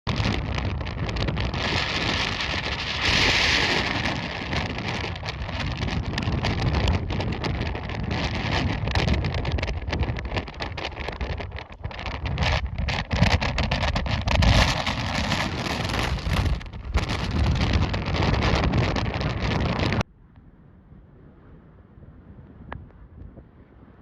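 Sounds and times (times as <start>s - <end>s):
wind buffeting microphone: 0.1s - 24.0s.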